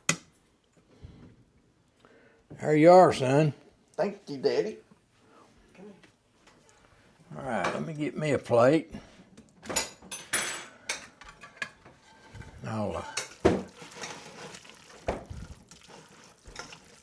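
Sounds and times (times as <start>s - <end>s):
utensil clinking and scraping: 11.3s - 17.0s.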